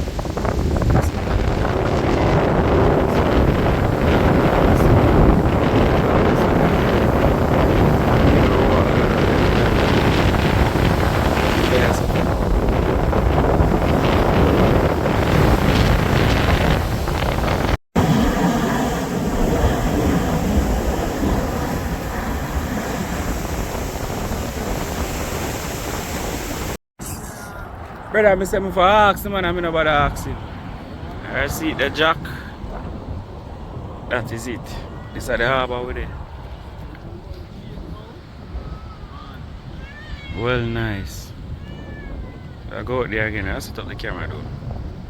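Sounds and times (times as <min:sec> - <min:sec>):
sea water washing: 0:00.0 - 0:26.8
wind buffeting microphone: 0:00.0 - 0:45.0.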